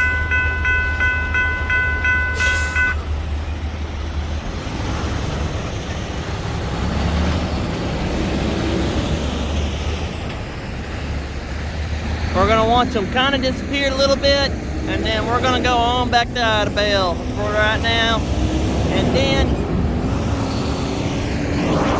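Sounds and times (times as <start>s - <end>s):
railroad warning bell ringing: 0.0s - 3.2s
diesel locomotives rumbling: 0.0s - 21.9s
train rolling noise: 0.0s - 21.9s.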